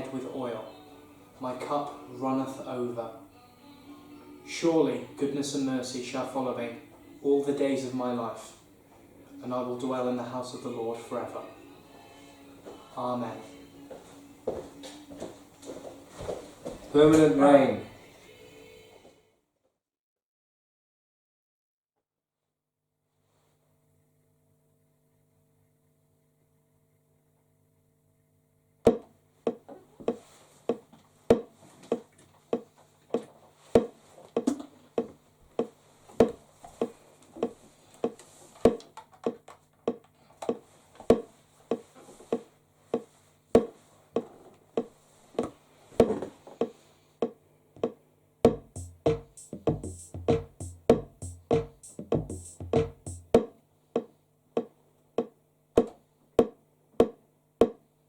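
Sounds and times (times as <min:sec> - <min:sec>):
drum machine beat: 0:46.6 - 0:55.4
low bass pattern: 0:48.5 - 0:53.4.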